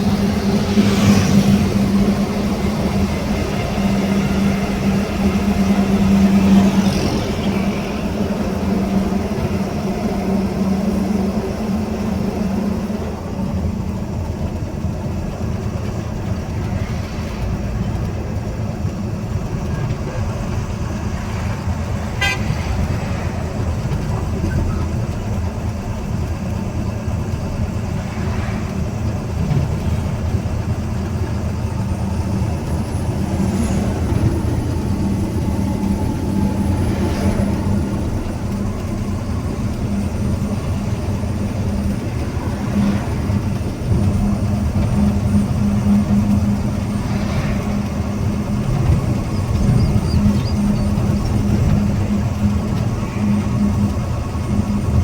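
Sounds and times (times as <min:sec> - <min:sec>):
vehicle engine and road noise: 0:00.0 - 0:55.0
vehicle horn held: 0:22.2 - 0:22.5.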